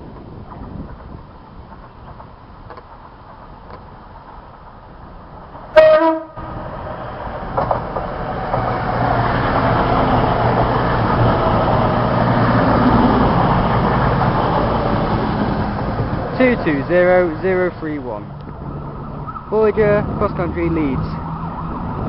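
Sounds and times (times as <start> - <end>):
diesel train rumble: 0.0 - 22.0
two-tone train horn: 5.8 - 6.5.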